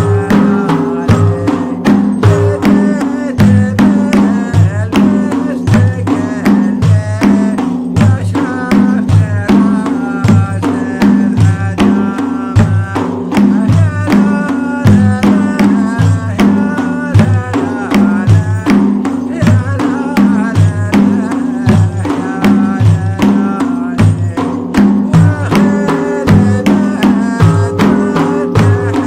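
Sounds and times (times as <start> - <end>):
wavering melody: 0.0 - 3.6, 25.3 - 29.0
frame drums beating: 0.0 - 29.0.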